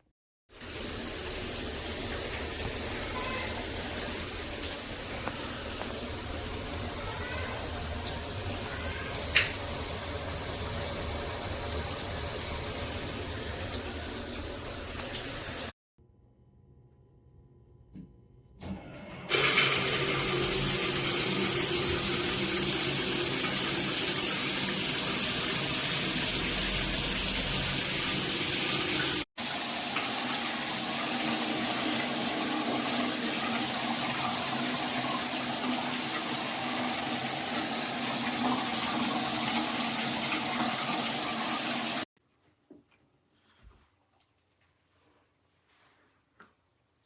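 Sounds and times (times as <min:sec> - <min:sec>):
water spraying from shower head: 0:00.5 - 0:15.8.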